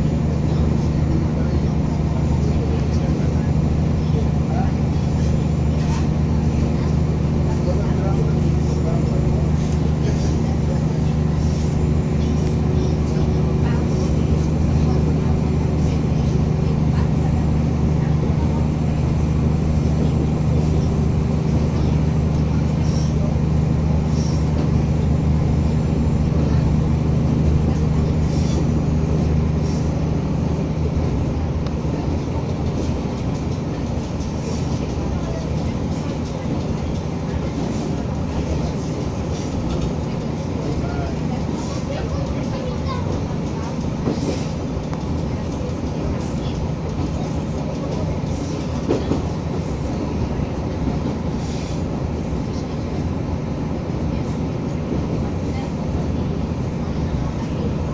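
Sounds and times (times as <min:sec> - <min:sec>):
railcar engine drone: 0:00.0 - 0:57.9
rolling rail noise: 0:00.0 - 0:57.9.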